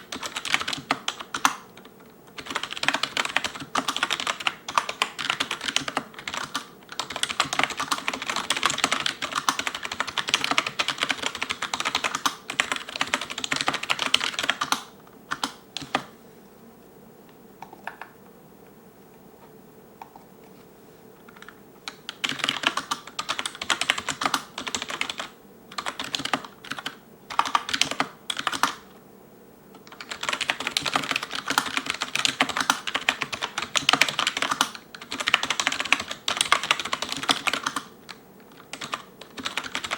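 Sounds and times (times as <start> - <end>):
keyboard typing: 0.0 - 16.1, 17.6 - 18.3, 21.2 - 28.8, 29.8 - 39.9.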